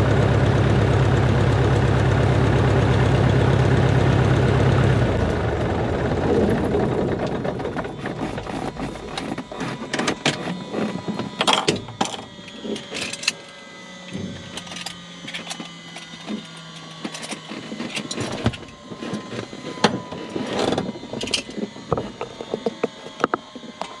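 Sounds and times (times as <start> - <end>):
faint falling whines: 0.0 - 24.0
plane engine idling and stopping: 0.0 - 24.0
clicks and rattles in cockpit: 6.4 - 24.0.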